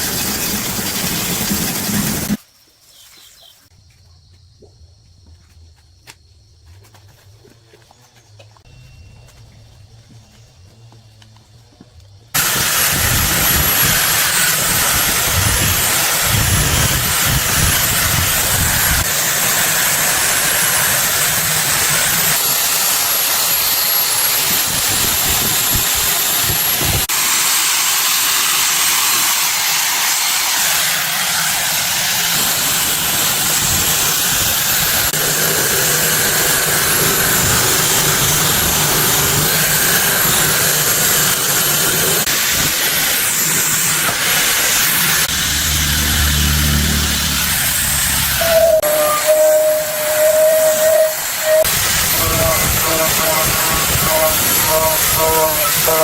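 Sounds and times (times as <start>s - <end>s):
faint high whistle: 8.7s - 9.7s, 48.3s - 51.7s
steady hissing rush: 12.4s - 56.0s.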